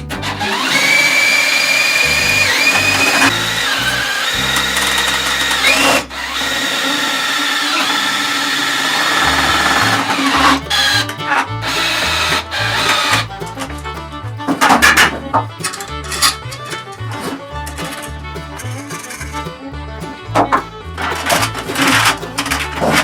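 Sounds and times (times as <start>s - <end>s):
power tool motor whining: 0.0s - 13.7s.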